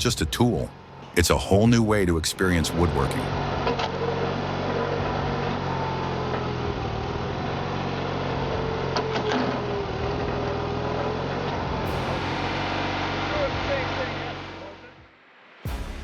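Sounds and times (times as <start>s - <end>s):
machine motor humming: 3.0s - 14.8s.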